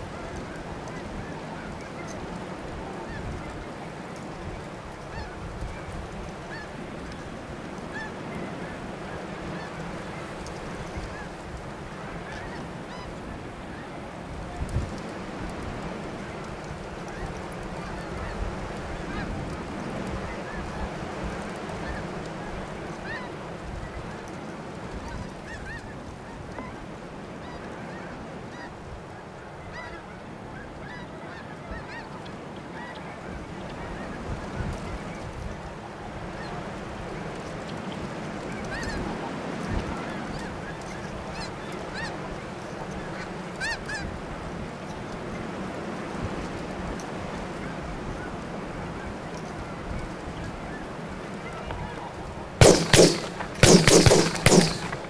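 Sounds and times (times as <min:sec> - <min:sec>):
geese honking: 0:52.6 - 0:55.0.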